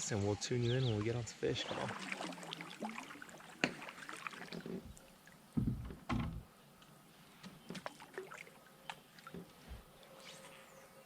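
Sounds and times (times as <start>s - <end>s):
thumps against kayak hull: 3.6s - 3.9s, 5.6s - 6.4s.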